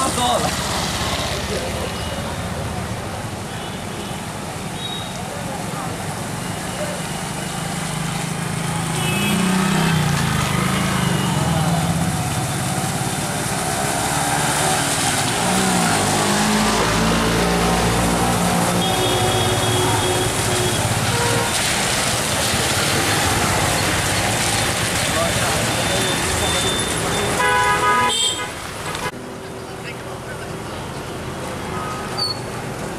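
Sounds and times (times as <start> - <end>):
road noise: 0.0 - 32.9
vehicle engines running: 5.4 - 27.5.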